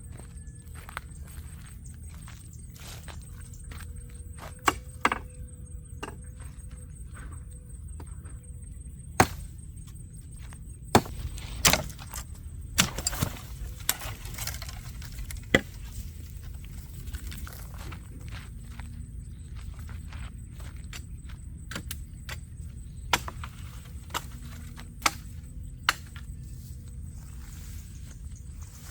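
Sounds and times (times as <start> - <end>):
sharp knocks and cracks: 9.2 - 9.5, 10.9 - 15.9, 23.1 - 26.2.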